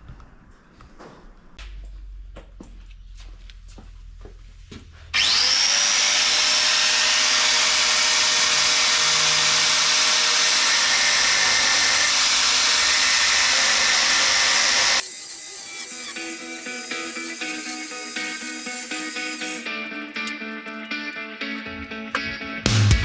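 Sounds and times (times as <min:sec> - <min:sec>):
angle grinder grinding steel: 0:05.2 - 0:23.0.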